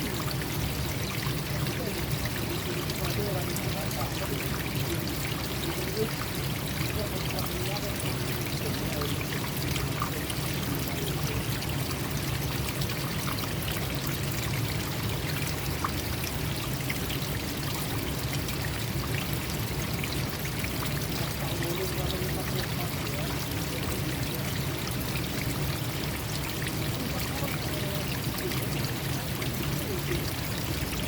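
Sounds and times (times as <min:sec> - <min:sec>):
stream water flowing: 0:00.0 - 0:31.0.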